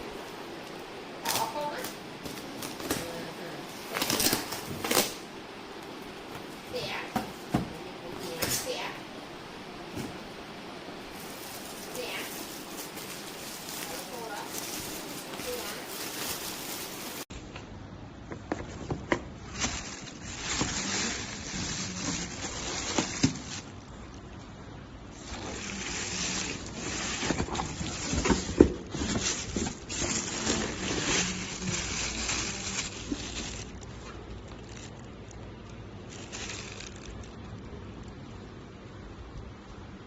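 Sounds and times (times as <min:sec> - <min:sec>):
shower water spraying: 0:11.0 - 0:17.3.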